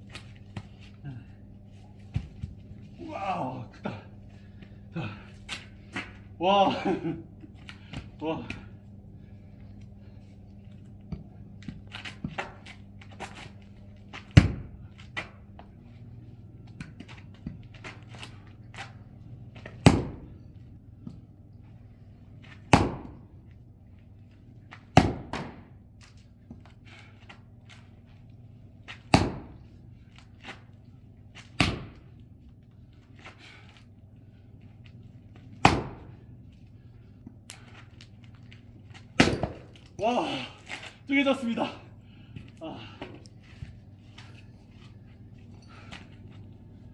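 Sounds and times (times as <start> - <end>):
axe chopping log: 19.8 - 20.2, 22.7 - 23.2, 24.9 - 25.6, 29.0 - 29.6, 31.6 - 32.0, 35.6 - 36.1, 39.2 - 39.7.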